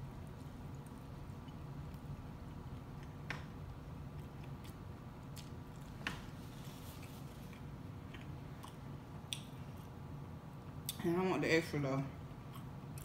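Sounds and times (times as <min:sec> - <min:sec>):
person chewing: 0:04.0 - 0:06.0, 0:12.4 - 0:13.0.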